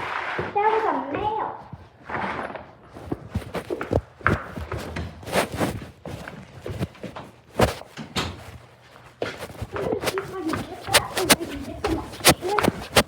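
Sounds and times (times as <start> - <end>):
footsteps walking: 2.8 - 13.0.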